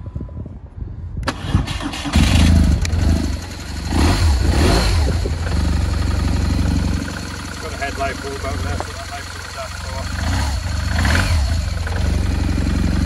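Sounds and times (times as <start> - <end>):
starter motor cranking: 1.2 - 3.1
motorcycle engine revving and idling: 1.6 - 13.0.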